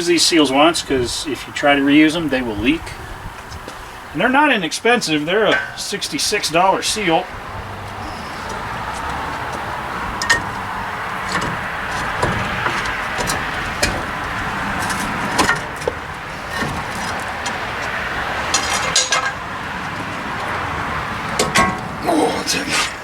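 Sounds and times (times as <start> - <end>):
steady background noise: 0.0 - 23.0
metal tool clicks and knocks: 18.5 - 19.4.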